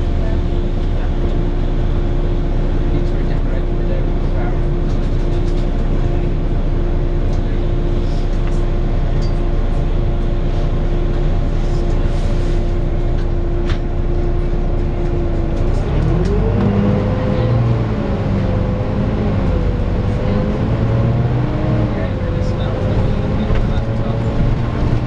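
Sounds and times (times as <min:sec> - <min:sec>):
bus diesel engine rumbling: 0:00.0 - 0:25.0
engine whine rising in pitch: 0:14.0 - 0:25.0.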